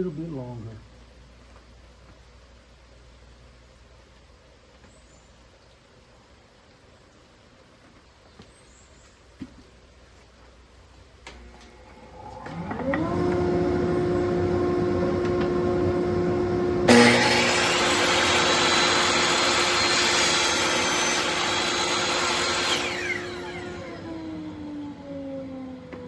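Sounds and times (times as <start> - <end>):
table saw motor running: 11.4 - 26.0
saw blade cutting wood: 16.8 - 24.3.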